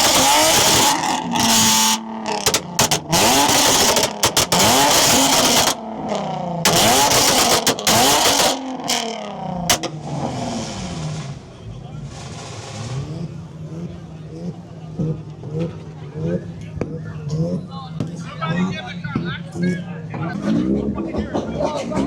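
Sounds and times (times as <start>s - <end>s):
car engine revving hard: 0.0s - 16.5s.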